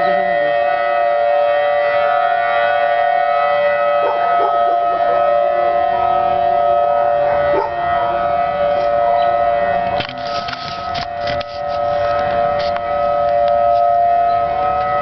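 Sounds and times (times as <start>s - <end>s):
warning siren: 0.0s - 15.0s.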